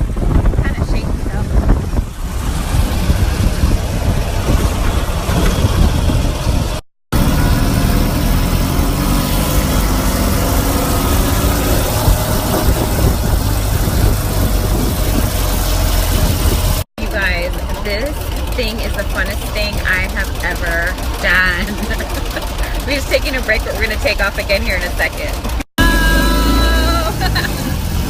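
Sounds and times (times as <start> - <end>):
wind noise on microphone: 0.0 - 6.8, 8.9 - 17.2
motorcycle engine running: 0.0 - 28.0.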